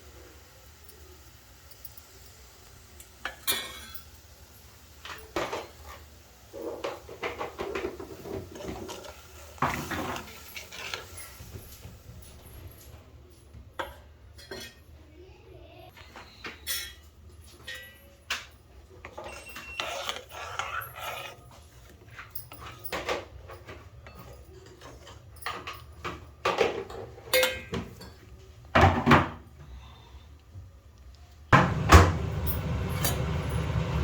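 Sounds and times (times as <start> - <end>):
dishes and utensils clinking: 3.2 - 15.0, 16.3 - 29.4.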